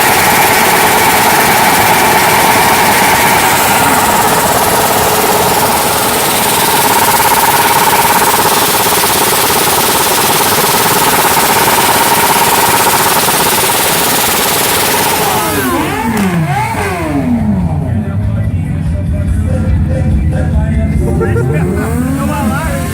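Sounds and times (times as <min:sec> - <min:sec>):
throttle blips: 0:00.0 - 0:17.8
motorcycle engines at rev limiter: 0:00.0 - 0:22.9.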